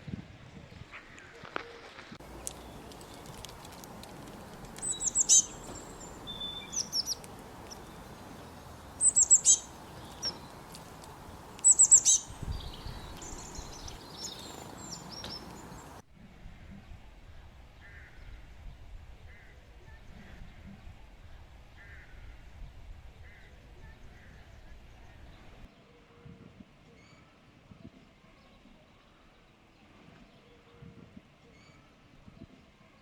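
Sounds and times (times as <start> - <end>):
birds chirping: 0.8 - 16.0
softer bird calls: 0.8 - 16.0
steady background hiss: 1.1 - 16.0.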